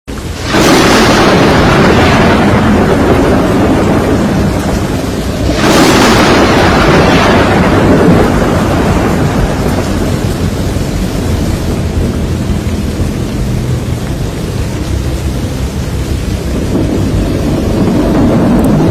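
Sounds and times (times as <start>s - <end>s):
heavy rain and storm rushing: 0.1s - 18.9s
crash-like surge: 0.3s - 10.8s.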